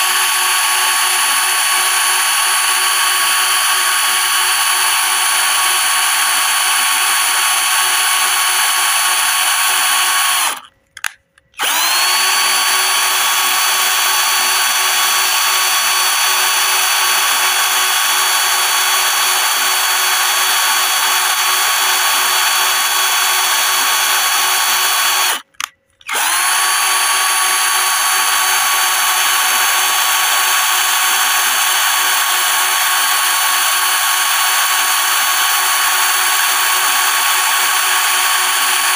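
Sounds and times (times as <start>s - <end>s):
electric drill whining: 0.0s - 10.7s, 11.6s - 38.9s.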